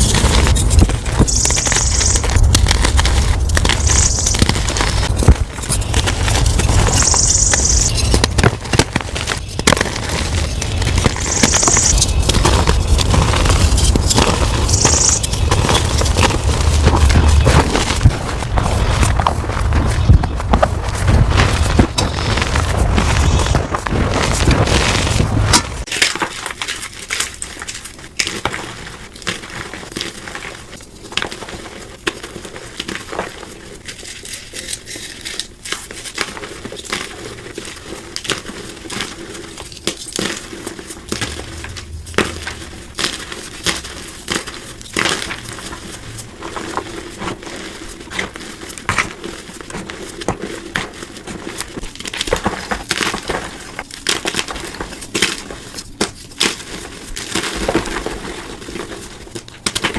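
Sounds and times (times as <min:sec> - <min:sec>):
chalk being crushed: 0:00.0 - 0:28.4
low rumble: 0:41.1 - 0:44.1.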